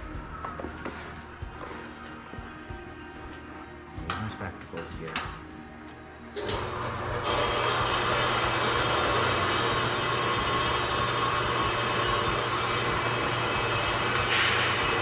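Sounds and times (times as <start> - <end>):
welding arc hissing: 7.2 - 15.0.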